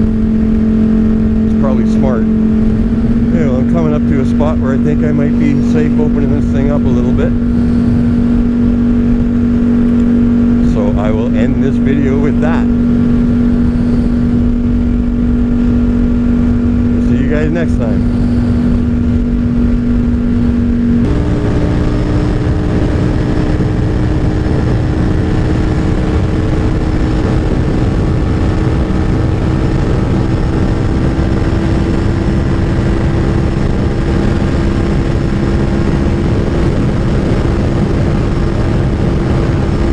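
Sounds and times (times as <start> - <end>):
wind rush over microphone: 0.0 - 39.9.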